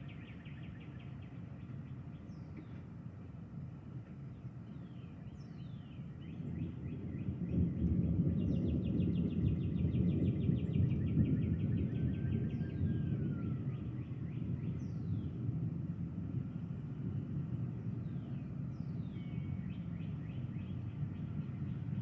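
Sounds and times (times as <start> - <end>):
birds singing: 0.0 - 3.3, 3.9 - 15.4, 17.1 - 22.0
rolling thunder rumble: 6.3 - 22.0.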